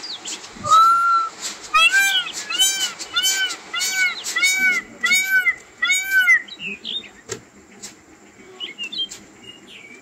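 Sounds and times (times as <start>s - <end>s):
animal call rising and falling: 0.6s - 6.5s.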